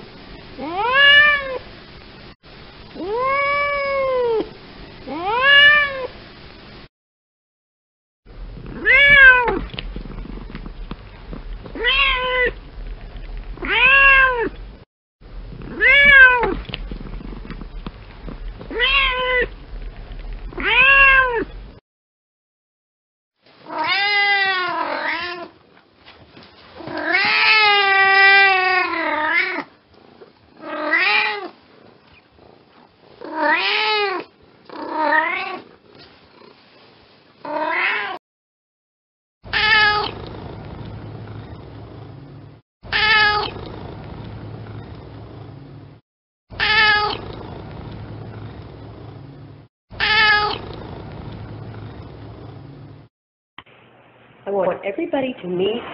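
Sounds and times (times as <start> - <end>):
cat meowing: 0.6 - 1.6, 3.0 - 4.5, 5.1 - 6.1, 8.8 - 9.7, 11.7 - 12.6, 13.6 - 14.6, 15.7 - 16.6, 18.7 - 19.5, 20.5 - 21.6, 23.7 - 25.5, 30.6 - 31.5, 33.2 - 35.6, 37.5 - 38.2, 39.5 - 40.2, 42.9 - 43.6, 46.6 - 47.2, 50.0 - 50.6.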